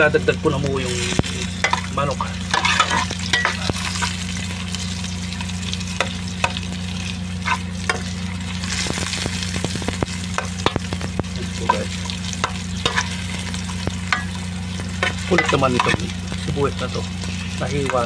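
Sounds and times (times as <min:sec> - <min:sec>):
food sizzling in hot oil: 0:00.0 - 0:18.0
steady low hum: 0:00.0 - 0:18.0
metal spoon scraping a pot: 0:01.6 - 0:04.1, 0:12.4 - 0:13.3.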